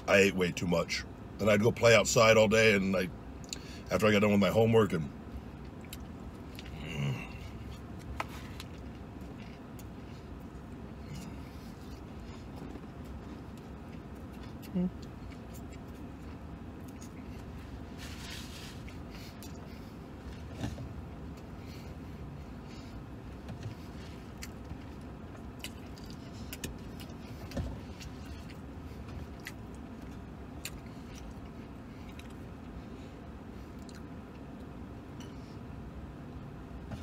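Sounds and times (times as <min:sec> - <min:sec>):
steady low rumble: 0:00.0 - 0:37.0
man chewing food: 0:05.5 - 0:17.9, 0:18.8 - 0:35.4.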